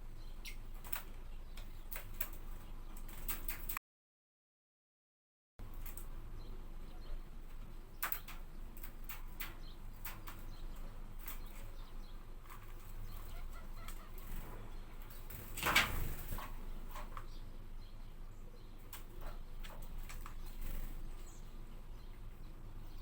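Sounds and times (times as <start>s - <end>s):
wing flutter: 0.4s - 3.8s, 7.6s - 17.3s, 18.9s - 21.5s
low steady hum: 5.6s - 23.0s.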